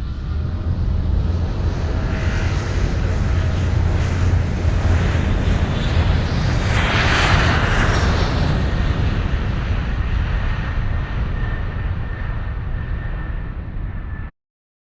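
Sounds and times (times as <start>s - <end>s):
train rumble and hiss: 0.0s - 6.6s.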